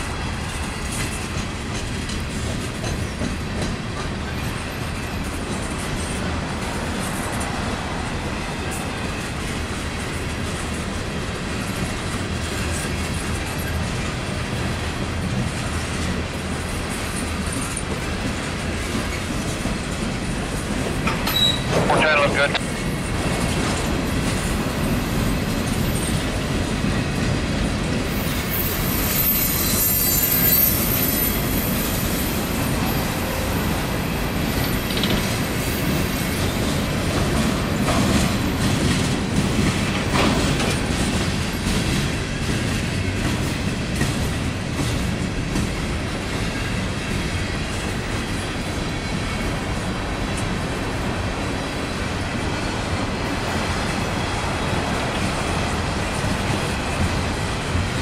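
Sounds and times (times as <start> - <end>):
train wheels rumbling on rails: 0.0 - 58.0
wheels clacking over rail joints: 0.4 - 28.6, 30.9 - 50.6
high-pitched wheel squeal: 21.2 - 21.7, 28.2 - 33.6.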